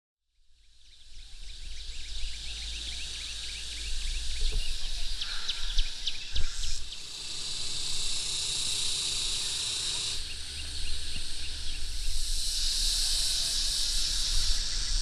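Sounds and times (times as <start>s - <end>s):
high insect drone: 0.4s - 15.0s
small birds chirping: 0.8s - 15.0s
wind rumble on microphone: 1.1s - 6.9s, 10.3s - 15.0s.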